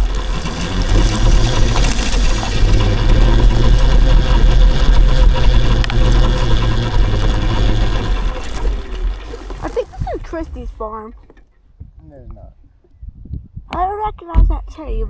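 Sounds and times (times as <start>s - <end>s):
electric motor whine: 0.0s - 11.5s
wind rumble on microphone: 11.8s - 15.0s.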